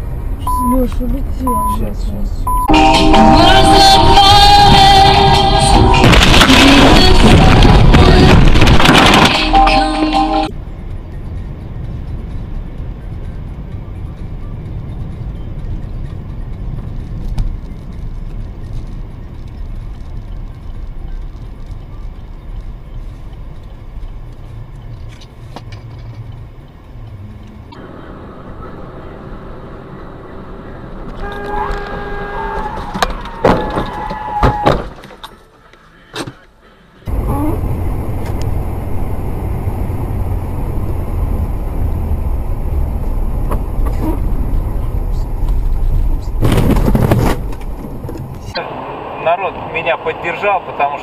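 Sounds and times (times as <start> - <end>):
car road and engine rumble: 0.0 - 51.0
car horn blasts: 2.5 - 7.4, 9.4 - 10.5, 31.2 - 32.9.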